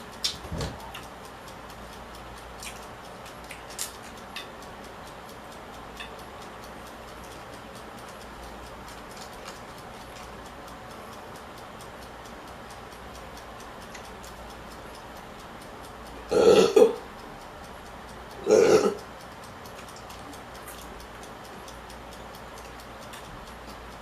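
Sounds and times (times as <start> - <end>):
faint regular ticking: 0.0 - 24.0
person burping: 16.3 - 17.0, 18.4 - 19.0.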